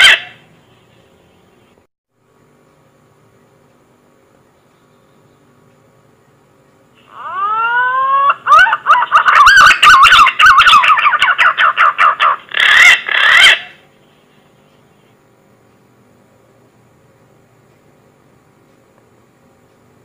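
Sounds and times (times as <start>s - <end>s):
faint steady hum: 0.0s - 20.0s
pigeon lure call whistles: 7.1s - 13.8s.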